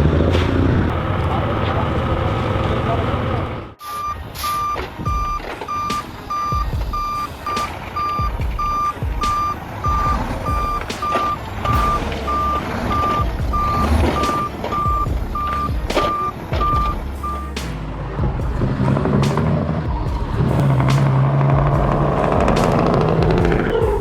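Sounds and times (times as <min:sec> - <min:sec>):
truck engine rumble: 0:00.0 - 0:24.0
reversing alarm beeping: 0:03.8 - 0:17.6.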